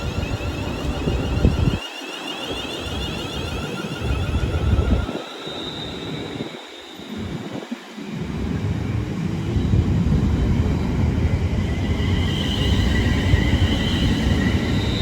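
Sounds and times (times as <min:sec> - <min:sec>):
train rumbling on track: 0:00.0 - 0:01.8, 0:08.2 - 0:15.0
high whine: 0:00.0 - 0:15.0.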